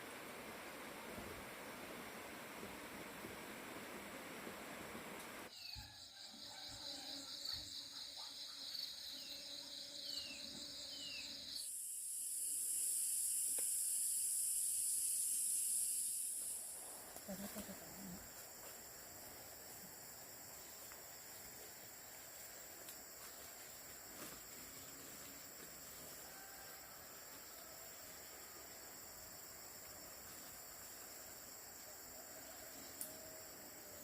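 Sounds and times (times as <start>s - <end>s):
high-pitched insect buzz: 5.5s - 21.4s
pulsing high insect trill: 5.5s - 34.0s.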